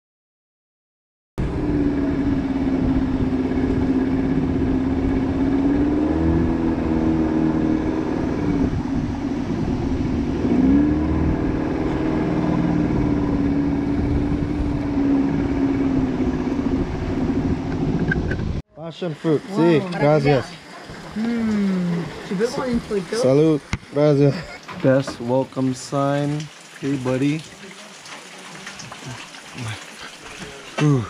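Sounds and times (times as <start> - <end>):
outboard motor running: 1.4 - 25.2.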